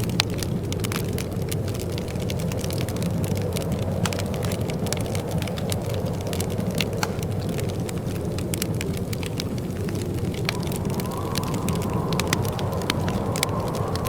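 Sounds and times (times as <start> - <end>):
wood fire crackling: 0.0 - 14.0
low rumble: 10.2 - 14.0.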